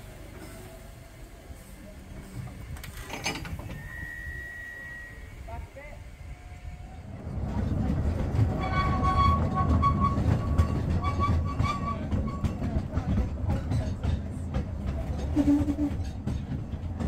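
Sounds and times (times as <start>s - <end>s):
train rumbling: 0.0s - 17.0s
wavering wheel squeal: 3.7s - 5.4s, 8.5s - 12.7s.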